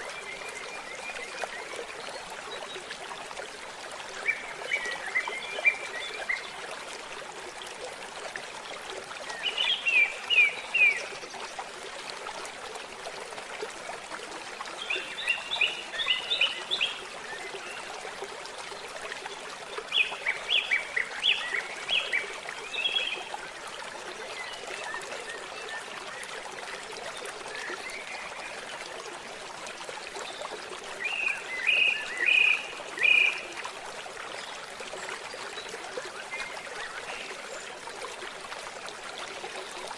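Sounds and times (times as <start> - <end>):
forest stream trickling: 0.0 - 39.9.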